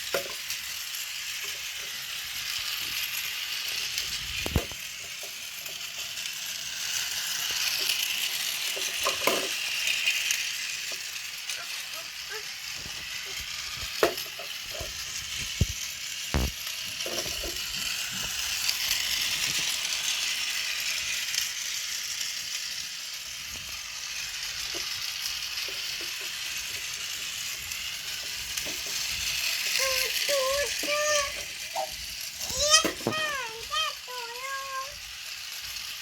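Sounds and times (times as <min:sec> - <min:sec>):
toy train knocks: 0:00.0 - 0:00.6, 0:07.8 - 0:09.9, 0:12.9 - 0:15.8, 0:16.4 - 0:18.4, 0:25.6 - 0:27.2, 0:28.1 - 0:33.9
toy train motor whirring: 0:00.0 - 0:36.0.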